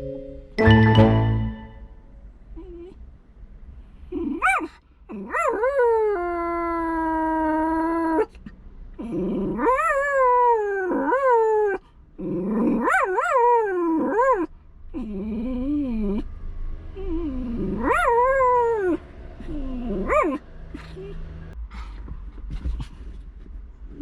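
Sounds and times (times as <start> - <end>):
dog howling and whining: 4.2 - 8.4, 9.0 - 16.3, 16.9 - 20.4.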